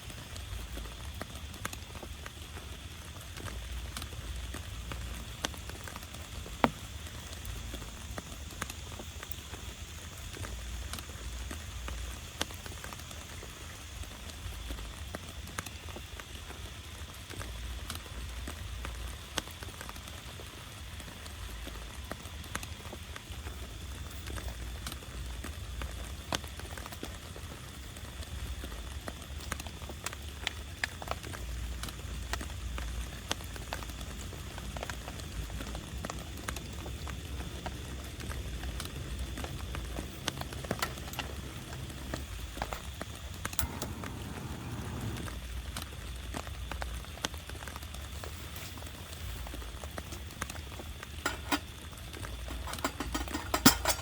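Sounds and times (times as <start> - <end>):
steady rain falling: 0.0 - 54.0
low rumble: 43.6 - 45.6.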